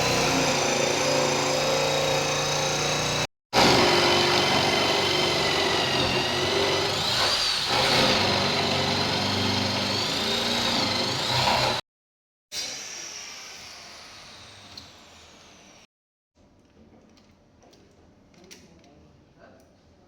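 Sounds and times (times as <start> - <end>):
electric power tool whine: 0.0 - 11.8.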